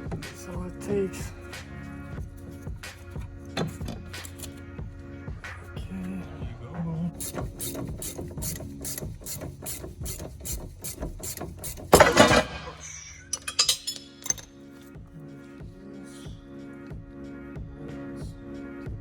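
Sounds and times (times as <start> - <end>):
ratchet wrench clicking: 7.2 - 12.0
loud clatter: 11.9 - 13.9.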